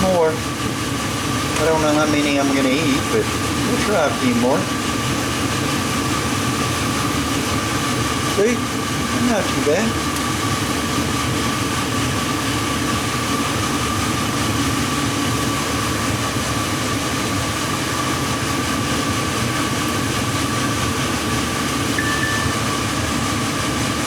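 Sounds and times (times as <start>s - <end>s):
thin steady whine: 0.0s - 24.0s
phone text alert tone: 22.0s - 22.7s.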